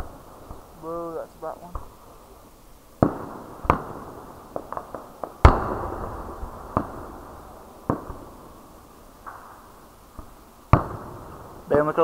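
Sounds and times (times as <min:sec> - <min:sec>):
firework shells booming: 0:00.0 - 0:12.0
small firework pops: 0:03.0 - 0:07.1, 0:07.8 - 0:08.4, 0:09.2 - 0:11.4.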